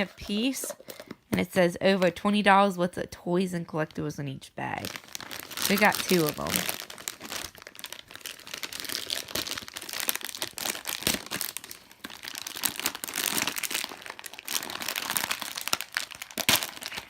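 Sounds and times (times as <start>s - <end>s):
plastic packaging crinkling and tearing: 4.6s - 17.0s.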